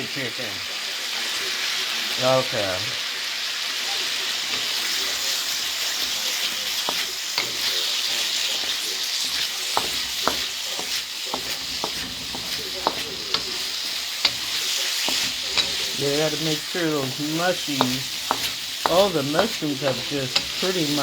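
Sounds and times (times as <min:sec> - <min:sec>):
food sizzling in a wok: 0:00.0 - 0:21.0
utensil tapping a pan: 0:04.5 - 0:21.0.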